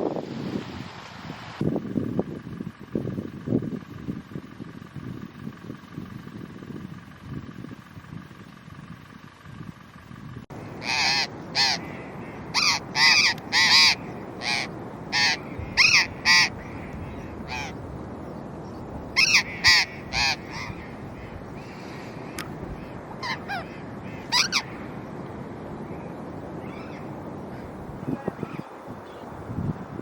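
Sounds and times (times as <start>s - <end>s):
bird giving short calls: 10.8s - 17.8s, 19.2s - 24.8s.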